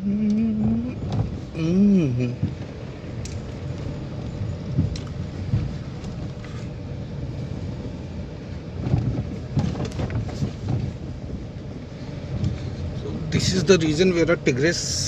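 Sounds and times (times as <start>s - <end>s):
car rumbling over rough road: 0.0s - 15.0s
thumps and rattles from bumps: 0.5s - 1.7s, 2.4s - 6.8s, 8.7s - 11.6s.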